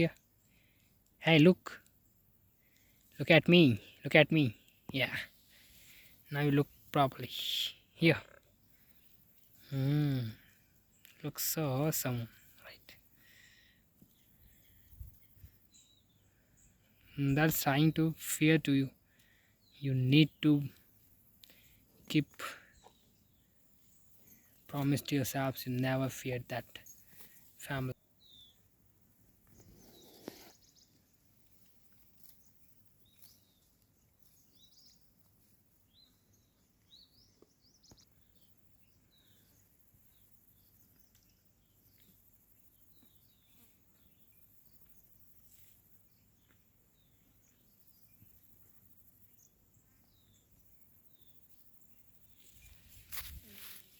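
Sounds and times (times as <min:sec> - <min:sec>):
faint bird chirps: 0:00.0 - 0:17.9, 0:19.0 - 0:24.9, 0:26.7 - 0:53.9
brief rustle: 0:52.4 - 0:53.9.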